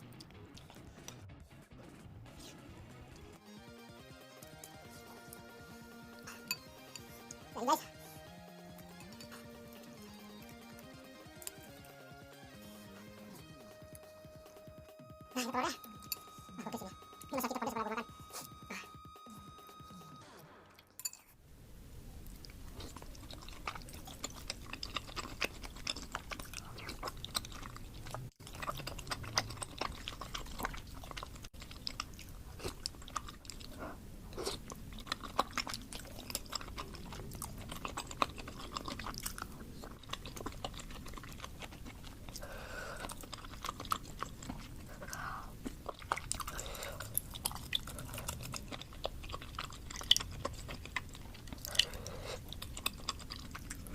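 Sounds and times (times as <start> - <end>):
wet chewing and mouth smacks: 4.4 - 12.6, 22.2 - 53.9.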